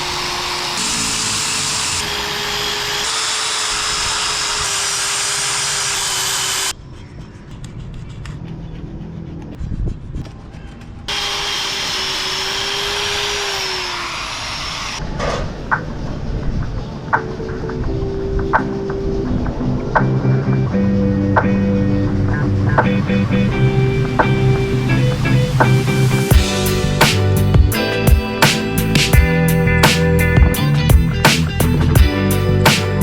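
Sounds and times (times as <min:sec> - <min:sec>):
power tool whining: 0:00.0 - 0:06.7, 0:11.1 - 0:15.0.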